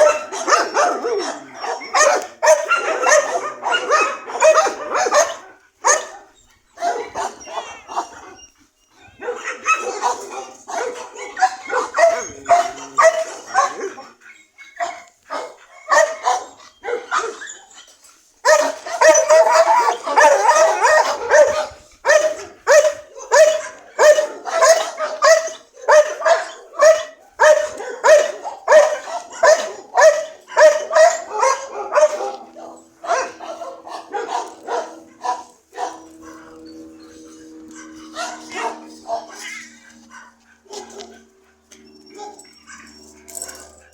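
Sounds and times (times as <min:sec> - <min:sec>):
dog barking: 0:00.0 - 0:08.2, 0:09.2 - 0:14.1, 0:14.8 - 0:17.4, 0:18.4 - 0:36.5, 0:37.6 - 0:41.2.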